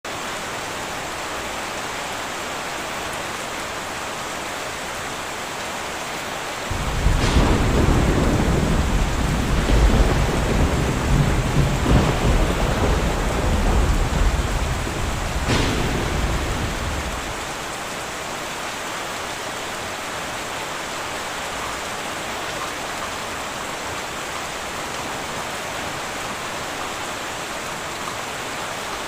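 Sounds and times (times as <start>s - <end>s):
heavy rain on a tin roof: 0.0s - 29.0s
thunder crack and rumble: 6.7s - 17.8s.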